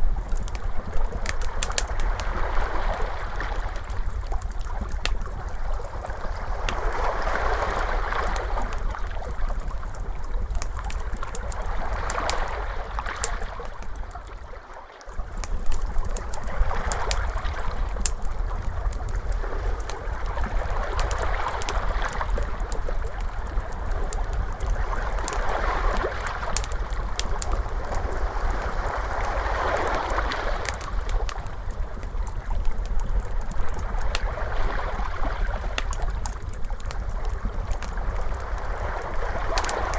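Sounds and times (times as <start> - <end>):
wood fire crackling: 0.0 - 39.9
ocean waves washing: 0.8 - 4.6, 5.2 - 10.0, 19.0 - 32.4.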